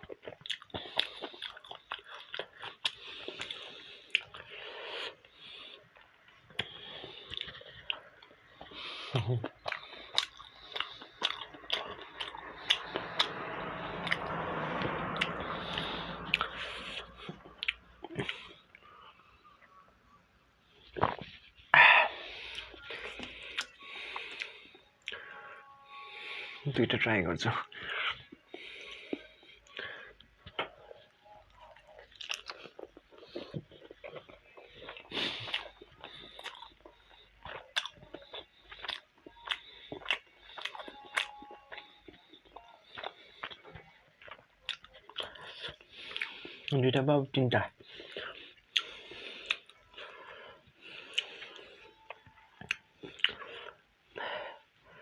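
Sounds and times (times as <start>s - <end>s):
chewing with wet mouth clicks: 0.0s - 4.6s, 5.2s - 13.4s, 15.2s - 18.8s, 22.5s - 25.3s, 28.5s - 46.8s, 47.8s - 50.1s, 50.8s - 53.8s.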